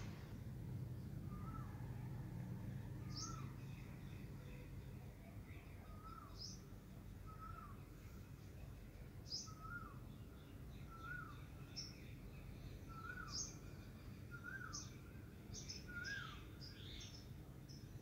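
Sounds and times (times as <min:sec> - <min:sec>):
low background hum: 0:00.0 - 0:18.0
rising and falling bird call: 0:01.3 - 0:02.2.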